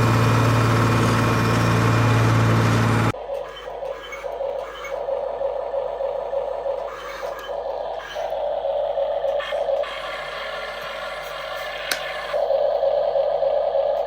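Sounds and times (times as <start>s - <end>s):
soft regular pulses: 3.1s - 14.0s
small electric motor whining: 6.8s - 8.6s.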